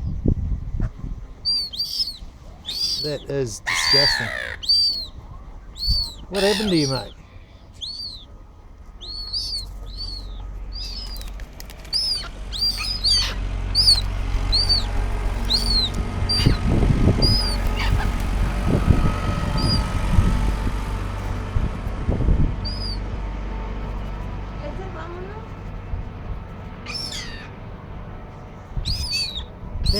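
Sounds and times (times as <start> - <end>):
low rumble: 0.0 - 29.9
bird chirping: 1.4 - 8.3, 8.9 - 20.1, 22.6 - 23.0, 26.8 - 27.6, 28.6 - 29.9.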